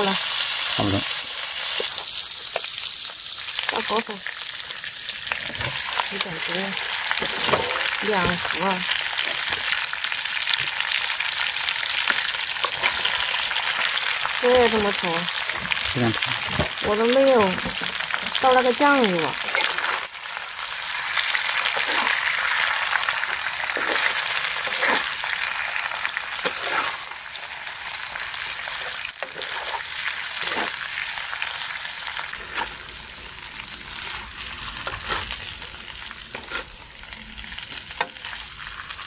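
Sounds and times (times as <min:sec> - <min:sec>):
noodles sizzling in a pan: 0:00.0 - 0:39.0
spatula scraping a pan: 0:19.4 - 0:20.1, 0:21.5 - 0:25.3, 0:26.3 - 0:27.1, 0:28.6 - 0:30.8, 0:32.3 - 0:32.9, 0:33.9 - 0:35.7, 0:36.3 - 0:37.0.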